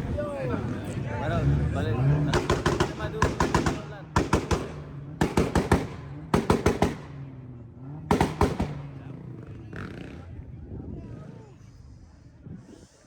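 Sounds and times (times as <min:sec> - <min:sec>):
car exhaust popping and crackling: 0:02.3 - 0:09.0.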